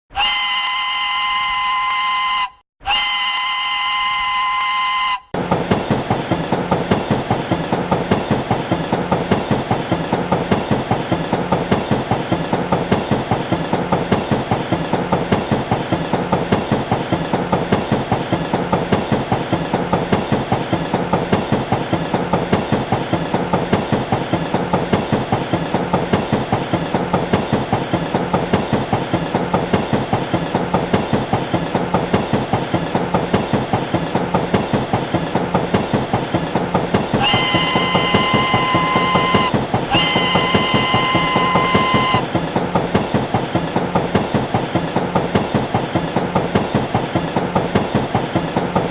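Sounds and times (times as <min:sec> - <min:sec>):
train wheels clickety-clack: 0:05.4 - 0:48.9
train horn blasts: 0:37.2 - 0:42.2.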